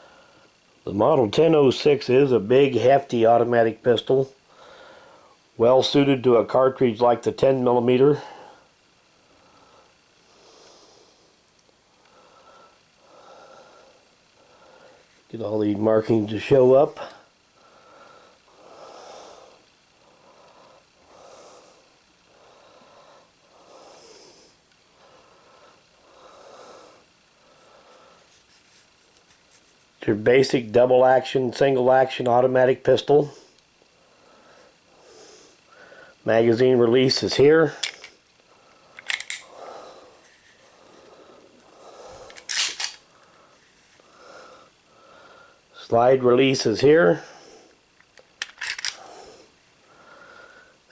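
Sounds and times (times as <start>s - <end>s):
person breathing: 4.5s - 5.4s, 8.2s - 8.7s, 9.3s - 15.2s, 17.0s - 28.9s, 33.3s - 36.2s, 37.7s - 45.7s, 47.2s - 47.8s, 48.6s - 50.9s
pistol metal clicks: 37.8s - 38.2s, 39.0s - 39.5s, 42.2s - 43.1s, 48.0s - 49.1s.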